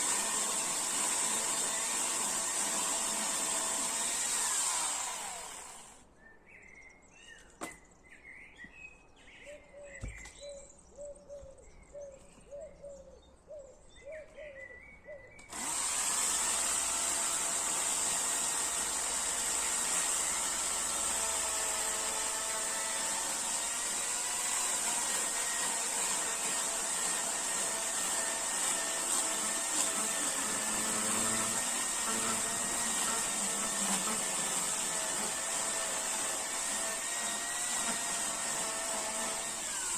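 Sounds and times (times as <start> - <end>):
chainsaw running: 0.0 - 6.0, 15.5 - 39.9
small birds chirping: 6.2 - 15.6.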